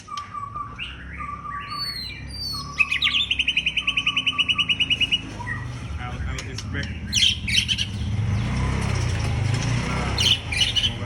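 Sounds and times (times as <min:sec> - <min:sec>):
bird singing: 0:00.0 - 0:11.0.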